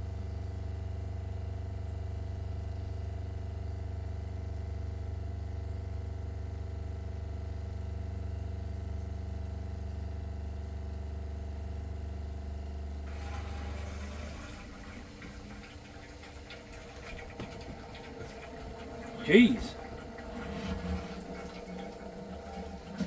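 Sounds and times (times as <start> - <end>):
water pump humming: 0.0 - 23.0
pump sucking air: 13.1 - 23.0.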